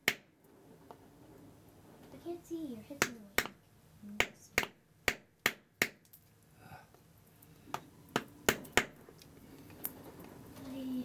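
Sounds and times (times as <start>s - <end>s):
tool striking a geode: 0.0s - 0.4s, 3.0s - 3.6s, 4.2s - 6.2s.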